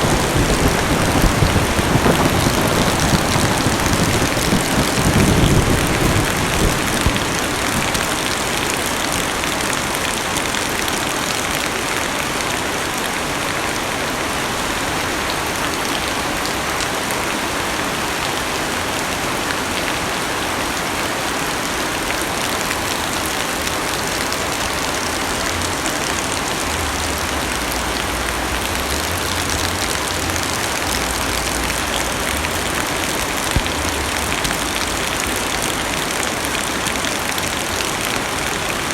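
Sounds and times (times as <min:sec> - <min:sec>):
low rumble: 0:00.0 - 0:08.2
heavy rain on car roof: 0:00.0 - 0:38.9.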